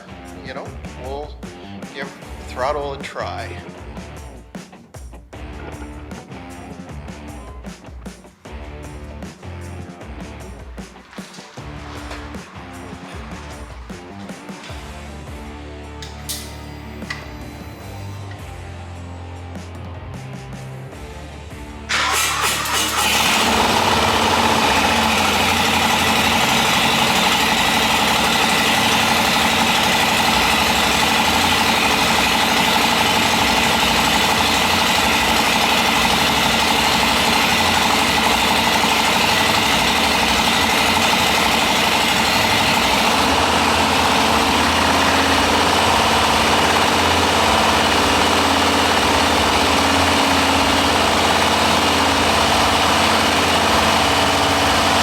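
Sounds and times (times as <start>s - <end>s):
motorcycle engine idling: 21.9s - 55.0s.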